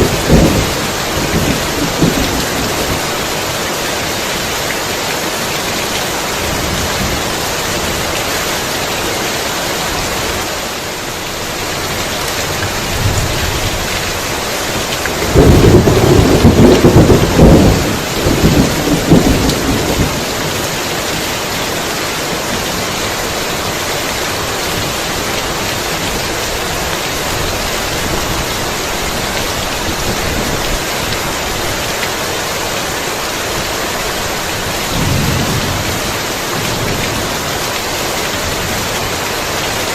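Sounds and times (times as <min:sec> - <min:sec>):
rolling thunder: 0:00.0 - 0:03.1, 0:15.2 - 0:20.3, 0:34.9 - 0:37.2
heavy rain falling: 0:00.0 - 0:39.9.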